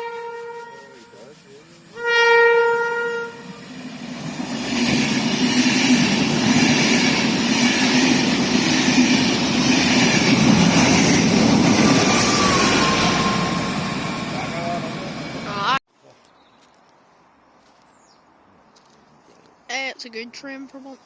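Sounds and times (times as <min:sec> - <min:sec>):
train horn blast: 0:00.0 - 0:03.8, 0:11.8 - 0:15.7
train rumble and rail clatter: 0:00.1 - 0:15.8.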